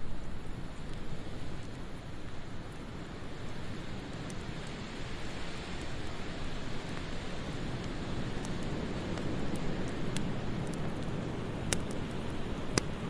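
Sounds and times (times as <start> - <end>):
wood fire crackling: 0.0 - 13.0
sharp fire pops: 3.3 - 13.0.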